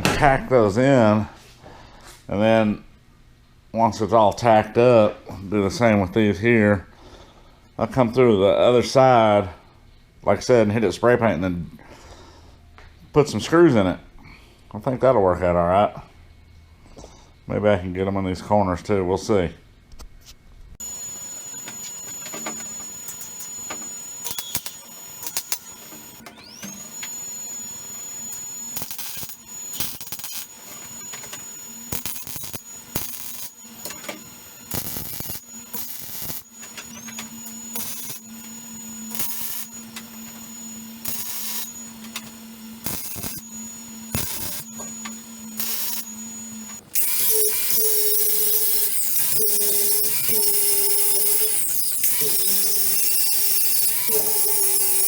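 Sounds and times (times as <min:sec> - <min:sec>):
high electronic whine: 0:20.8 - 0:55.0
welding arc crackle: 0:20.8 - 0:55.0.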